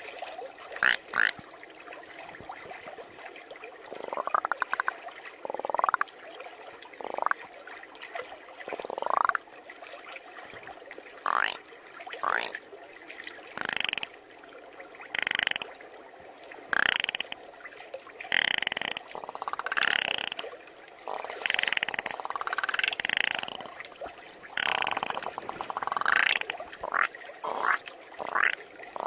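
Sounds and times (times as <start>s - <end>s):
person imitating frog croaks: 13.6s - 14.1s, 16.8s - 17.4s, 18.3s - 20.4s, 21.1s - 23.7s, 24.6s - 29.0s.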